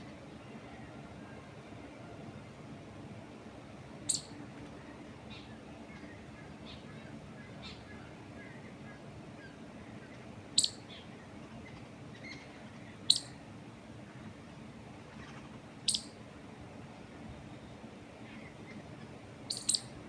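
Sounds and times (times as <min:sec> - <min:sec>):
low background noise: 0:00.0 - 0:20.0
songbird high chirps: 0:04.1 - 0:04.4, 0:10.5 - 0:11.1, 0:12.2 - 0:13.4, 0:15.8 - 0:16.2, 0:19.4 - 0:20.0.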